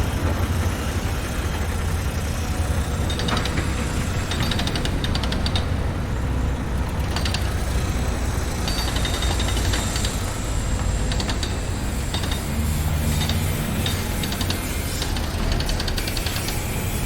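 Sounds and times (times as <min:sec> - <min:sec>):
constant rumble: 0:00.0 - 0:17.0
heavy engine running: 0:00.0 - 0:17.0
metallic clicking and rattling: 0:03.0 - 0:16.6.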